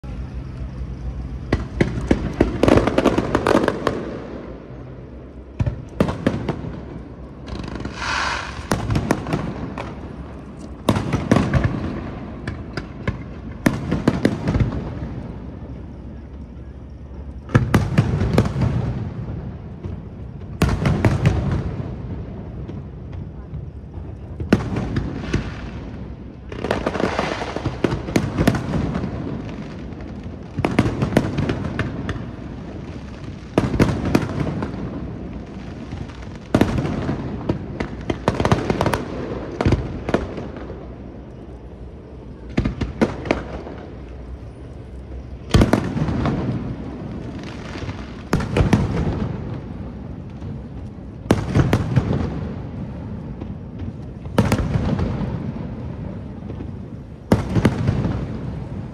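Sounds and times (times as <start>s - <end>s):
crackling reports: 7.4s - 13.3s
firework shells bursting: 7.4s - 14.8s.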